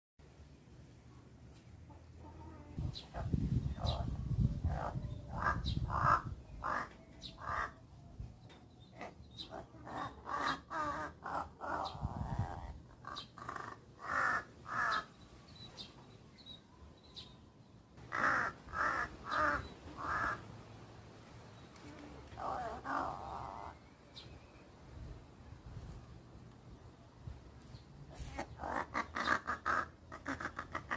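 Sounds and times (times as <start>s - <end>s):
crows cawing: 5.3s - 7.8s, 13.0s - 15.1s, 18.0s - 20.5s, 28.6s - 30.9s.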